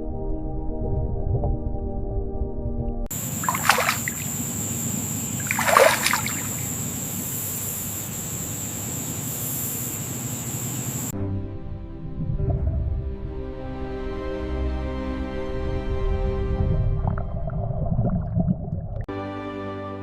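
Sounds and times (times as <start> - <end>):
music: 0.0 - 3.1, 11.2 - 17.6, 19.1 - 20.0
running water: 3.1 - 9.3
water splashes: 3.1 - 11.1.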